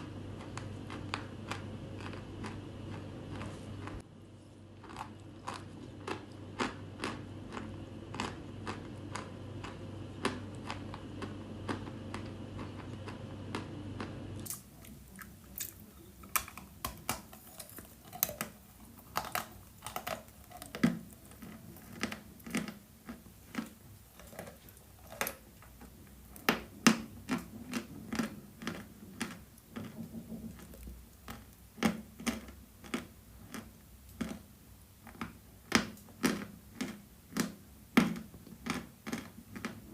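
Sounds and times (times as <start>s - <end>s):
low steady hum: 0.0s - 39.9s.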